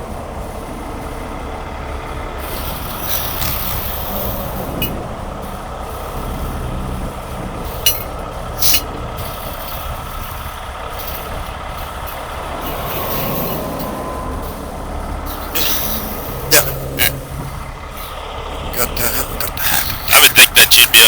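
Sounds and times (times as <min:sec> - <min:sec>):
diesel truck engine idling: 0:00.0 - 0:21.0
sharp clanks or hisses: 0:15.3 - 0:16.4.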